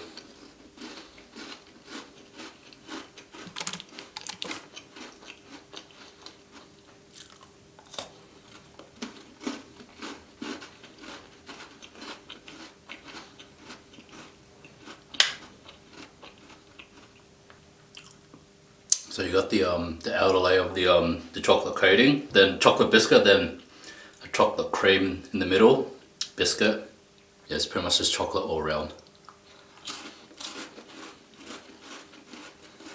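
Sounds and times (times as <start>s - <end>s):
crunchy chewing of biscuits: 0.0s - 19.3s, 29.0s - 32.9s.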